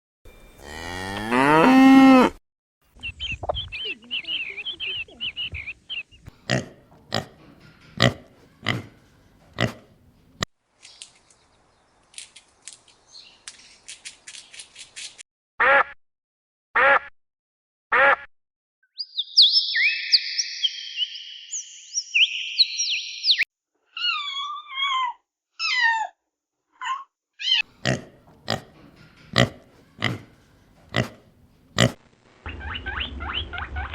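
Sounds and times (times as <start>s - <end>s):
cow mooing: 0.6s - 2.4s
chirping and trilling calls: 3.0s - 6.6s, 18.9s - 25.1s, 32.5s - 33.9s.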